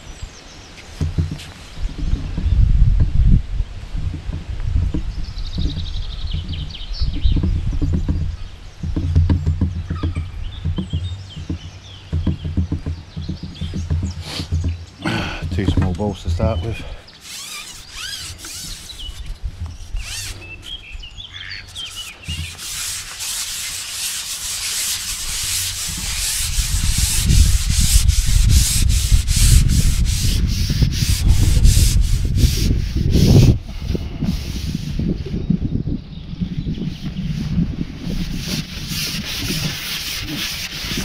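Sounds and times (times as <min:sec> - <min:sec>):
wind buffeting microphone: 0:00.0 - 0:23.1, 0:24.6 - 0:41.0
birds calling faintly: 0:00.0 - 0:41.0
gritty rubbing of hands: 0:00.8 - 0:01.9, 0:12.3 - 0:20.8, 0:21.5 - 0:35.1, 0:36.9 - 0:41.0.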